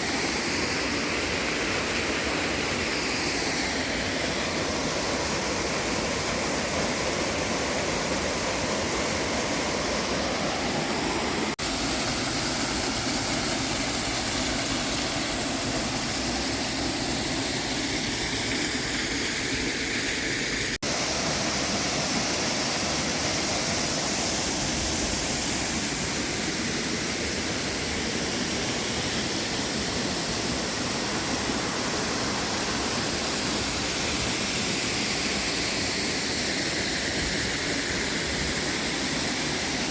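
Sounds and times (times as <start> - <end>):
rushing waterfall: 0.0 - 39.9.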